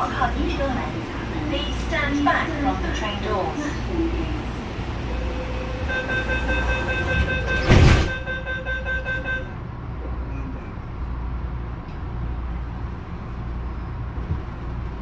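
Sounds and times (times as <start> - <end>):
electric train rumbling: 0.0 - 15.0
flat steady tone: 5.1 - 9.5.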